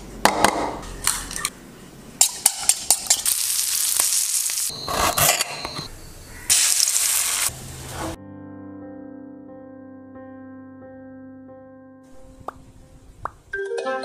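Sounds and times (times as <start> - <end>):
food sizzling in frying pan: 3.0 - 4.7, 6.5 - 8.1.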